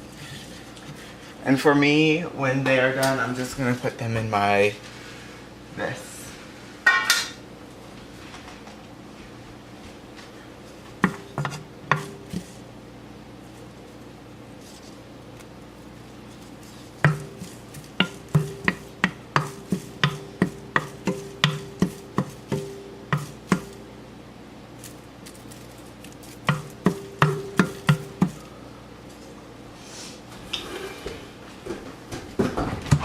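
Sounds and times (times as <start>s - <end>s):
steady low hum: 0.0s - 33.0s
utensil knocking on metal pan: 17.0s - 23.8s, 26.5s - 28.4s.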